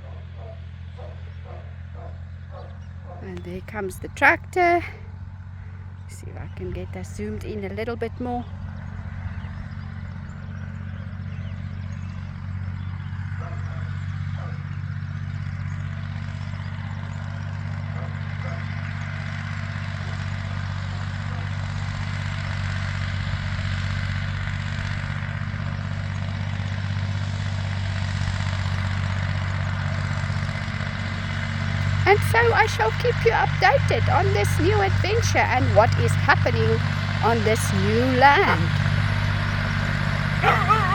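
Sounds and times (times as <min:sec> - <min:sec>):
tractor engine running: 0:03.2 - 0:13.4, 0:18.6 - 0:40.9.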